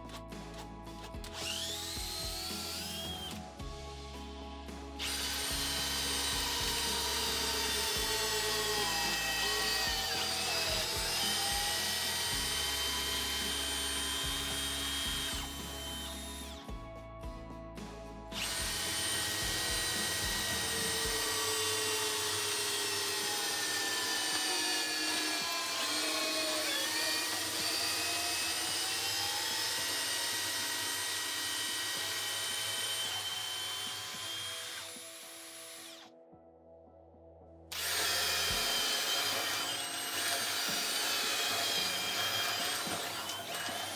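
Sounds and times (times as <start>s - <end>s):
cordless drill motor whining: 0.0s - 3.6s, 5.0s - 16.7s, 18.4s - 36.1s, 37.7s - 43.9s.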